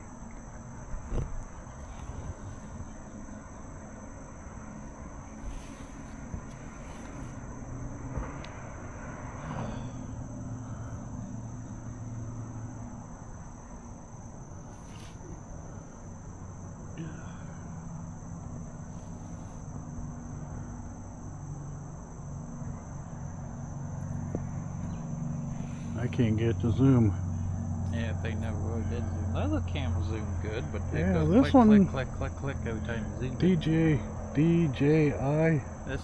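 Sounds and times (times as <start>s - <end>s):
crickets chirping: 0.0s - 36.0s
low steady hum: 0.0s - 36.0s
faint distant voices: 24.3s - 36.0s.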